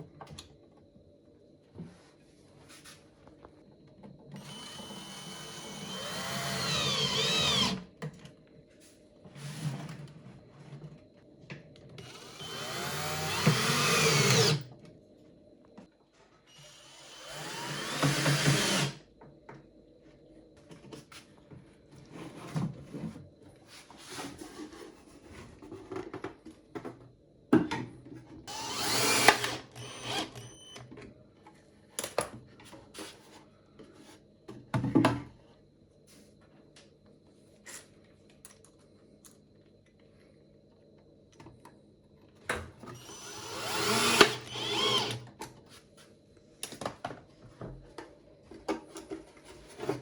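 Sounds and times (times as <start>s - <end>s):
electric drill running: 4.4s - 7.8s, 12.0s - 14.6s, 16.6s - 19.0s, 28.5s - 30.8s, 43.0s - 45.2s.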